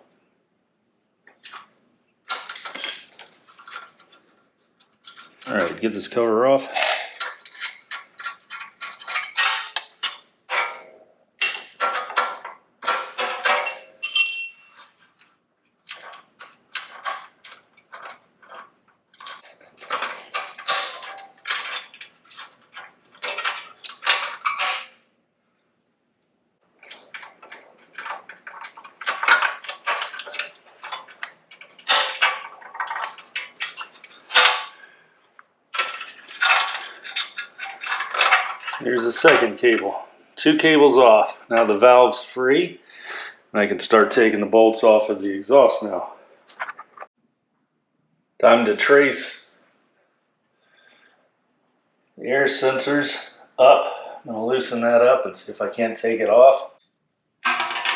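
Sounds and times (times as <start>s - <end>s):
metal tools clinking and rattling: 2.3s - 6.0s, 6.6s - 15.3s, 15.9s - 25.0s, 26.8s - 35.0s, 35.7s - 40.0s, 57.4s - 57.9s.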